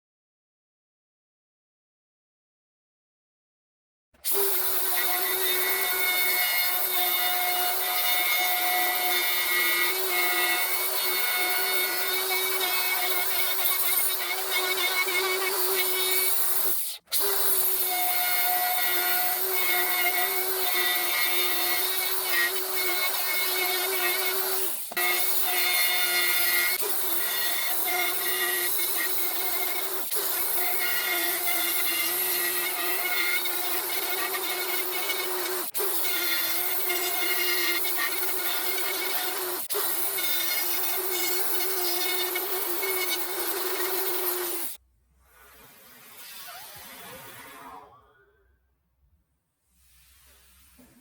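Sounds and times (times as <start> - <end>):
wood router whining: 4.3 - 44.8.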